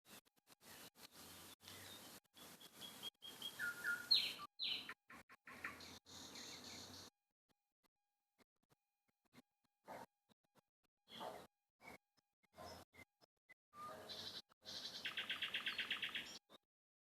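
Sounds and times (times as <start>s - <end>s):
bird chirps: 0.6s - 7.1s, 11.1s - 12.0s, 13.8s - 16.5s.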